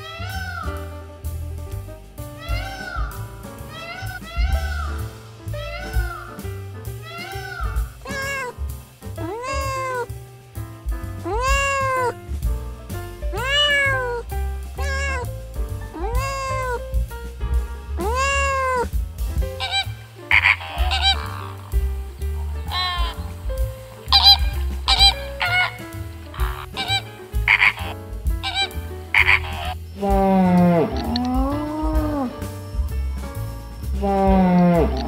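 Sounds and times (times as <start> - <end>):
background music: 0.0 - 35.0
cat meowing: 7.0 - 8.6, 9.2 - 10.1, 11.2 - 12.2, 13.3 - 16.9, 17.9 - 19.0, 19.6 - 21.8, 22.4 - 32.4
harsh animal call: 7.0 - 8.6, 9.2 - 10.1, 11.2 - 12.3, 13.3 - 16.8, 17.9 - 32.5, 33.9 - 35.0.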